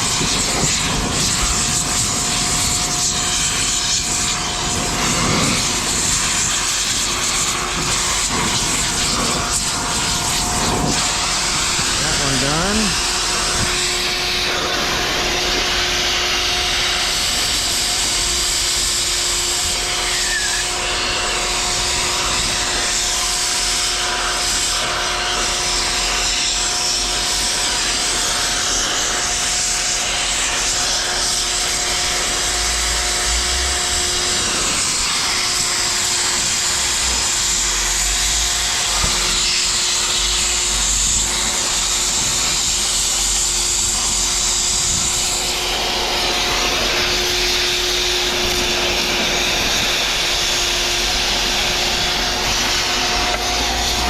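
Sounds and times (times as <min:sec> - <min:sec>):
cutting torch hissing: 0:00.0 - 0:54.0
low hum: 0:45.1 - 0:54.0.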